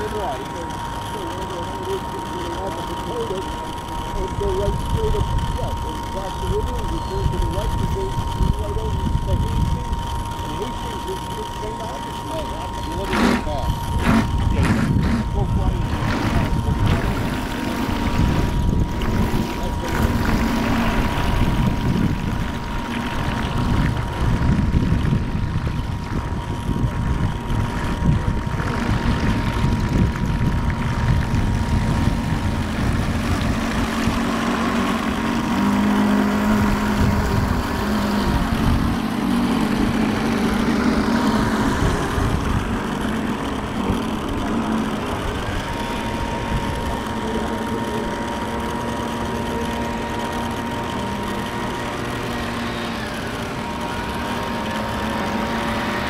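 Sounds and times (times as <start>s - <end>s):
model boat engine whining: 0.0s - 56.0s
wind buffeting microphone: 3.9s - 10.9s, 12.7s - 48.9s.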